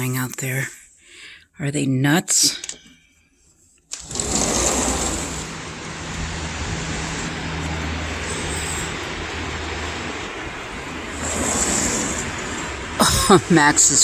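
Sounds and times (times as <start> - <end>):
low even drone: 4.0 - 14.0
strong wind rushing: 4.0 - 14.0.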